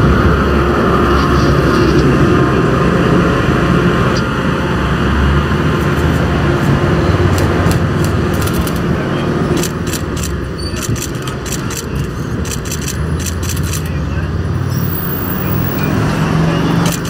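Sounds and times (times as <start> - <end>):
train wheels rolling on rails: 5.6 - 14.0.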